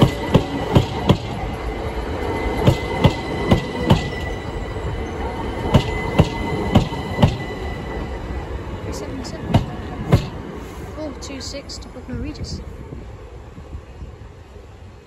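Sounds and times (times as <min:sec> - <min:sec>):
train wheels clacking over rail joints: 0:00.0 - 0:01.5, 0:02.6 - 0:04.4, 0:05.6 - 0:07.5, 0:09.5 - 0:10.5
train rolling rumble: 0:00.0 - 0:15.0.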